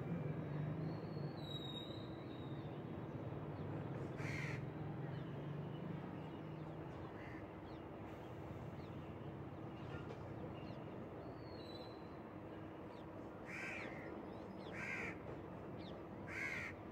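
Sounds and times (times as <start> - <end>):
harsh caw-like bird call: 4.2 - 4.6, 13.4 - 15.2, 16.3 - 16.8.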